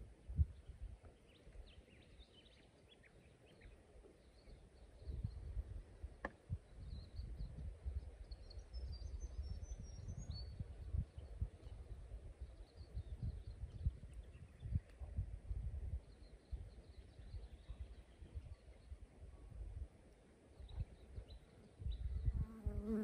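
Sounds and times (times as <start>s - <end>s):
low rumble on microphone: 0.0s - 1.8s, 4.5s - 19.9s, 20.6s - 23.0s.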